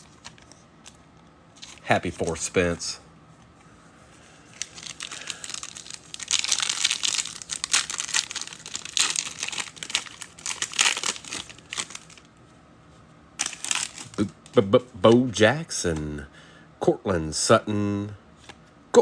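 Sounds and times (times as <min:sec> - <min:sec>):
wrapper crinkling and tearing: 0:04.5 - 0:12.3, 0:13.4 - 0:14.6.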